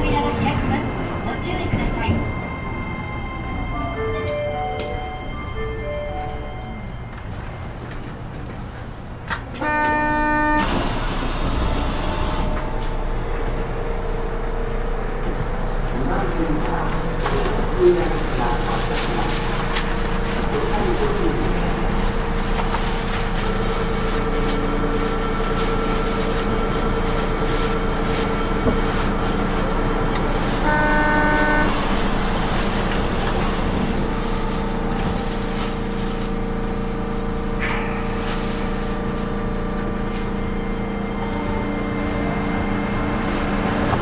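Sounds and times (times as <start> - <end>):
electrical hum of a train: 0.0 - 44.0
short horn tone: 9.6 - 10.8, 30.6 - 32.0.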